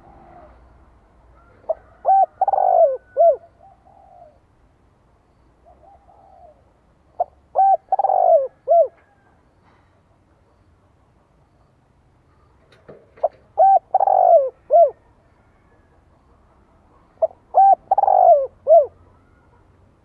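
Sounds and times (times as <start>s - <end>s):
dove cooing: 0.0s - 0.7s, 1.4s - 4.5s, 5.6s - 9.3s, 13.1s - 15.9s, 17.0s - 19.7s.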